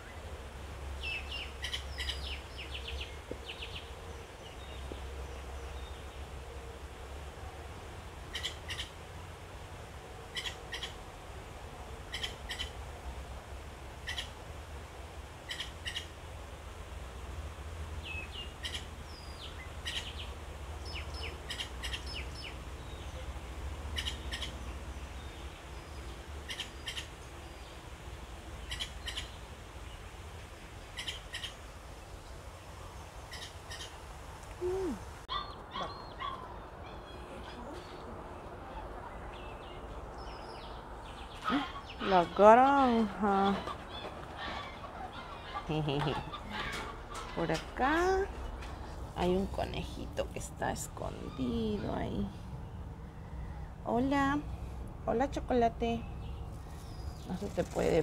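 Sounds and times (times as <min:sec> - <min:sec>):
bird chirping: 0:01.0 - 0:06.2, 0:08.3 - 0:09.0, 0:18.0 - 0:27.8, 0:28.6 - 0:30.0, 0:30.8 - 0:34.0, 0:34.6 - 0:53.8.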